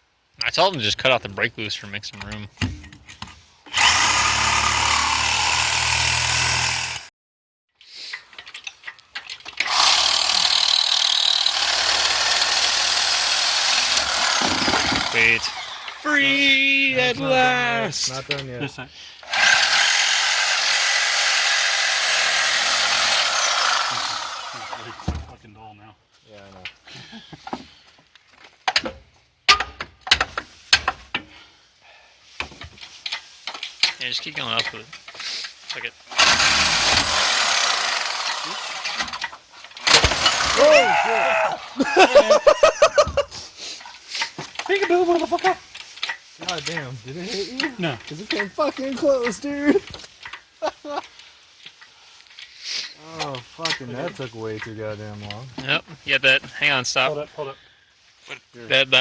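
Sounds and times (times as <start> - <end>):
power tool cutting metal: 3.7 - 7.1, 9.6 - 16.0, 19.3 - 25.0, 36.1 - 40.7.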